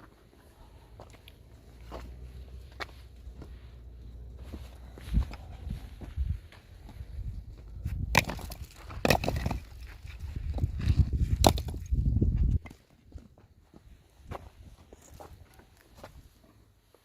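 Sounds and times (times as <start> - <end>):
sharp knocks and cracks: 8.1 - 10.0, 11.3 - 12.0.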